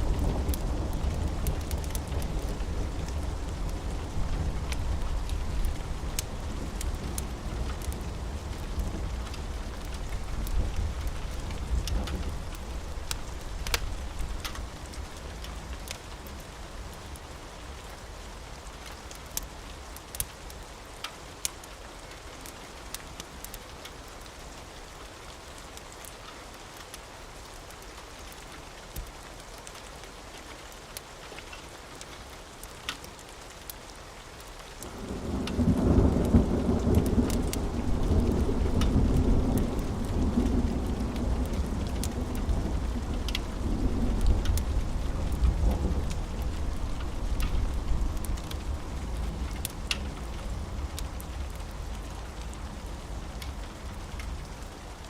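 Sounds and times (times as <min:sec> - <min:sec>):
steady rain: 0:00.0 - 0:55.0
wood fire crackling: 0:00.0 - 0:55.0
thunder rumbling: 0:34.9 - 0:54.4.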